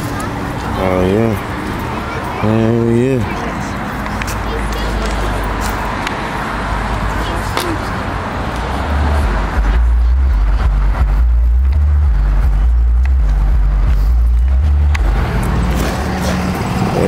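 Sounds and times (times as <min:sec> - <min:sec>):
heavy subwoofer bass notes: 0:09.0 - 0:16.1.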